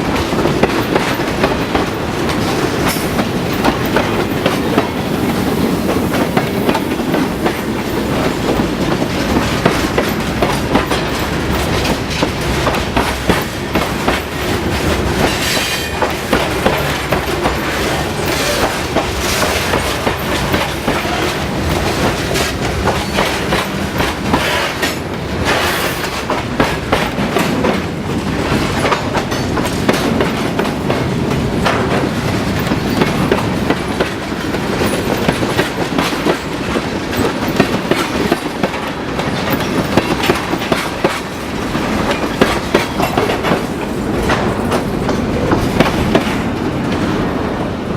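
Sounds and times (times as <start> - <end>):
train wheels clacking on rails: 0.0 - 47.9.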